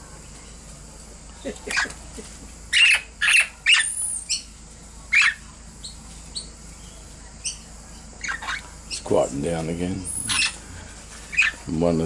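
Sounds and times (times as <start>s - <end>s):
parrots squawking: 1.6s - 2.0s, 2.7s - 4.5s, 5.1s - 5.4s, 7.4s - 9.1s, 10.0s - 10.6s, 11.2s - 11.7s.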